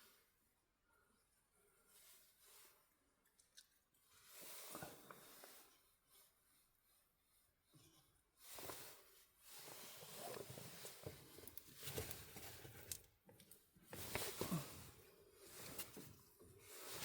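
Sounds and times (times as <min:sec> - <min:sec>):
plastic pipe rustling and scraping: 0:07.8 - 0:17.0.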